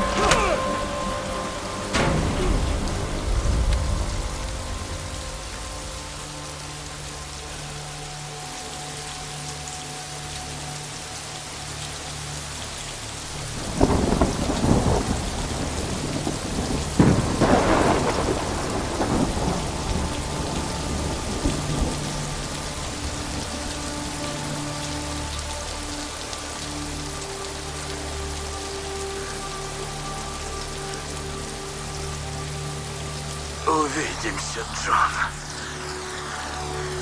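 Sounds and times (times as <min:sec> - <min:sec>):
heavy rain falling: 0:00.0 - 0:37.0
thunder claps rolling: 0:13.5 - 0:23.5.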